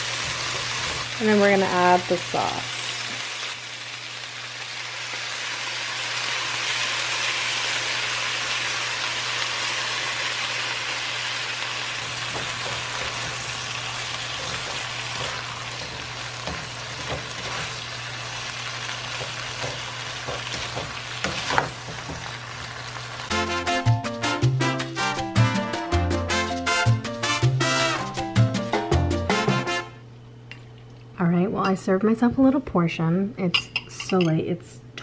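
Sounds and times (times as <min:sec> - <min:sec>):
food sizzling in a pan: 0:00.0 - 0:23.3
spatula knocking and scraping pan: 0:12.0 - 0:17.8, 0:19.0 - 0:22.6.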